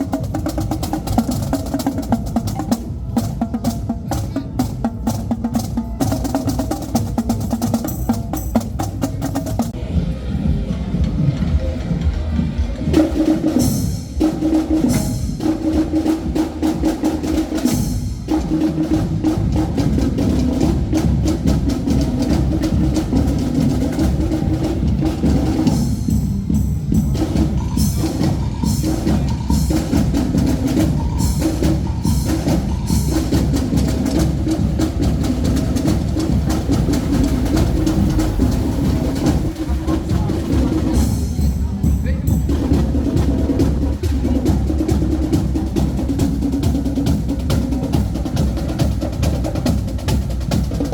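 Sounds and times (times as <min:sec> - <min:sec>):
bass drums: 0:00.0 - 0:50.9
snare drum strokes and rolls: 0:12.6 - 0:50.9.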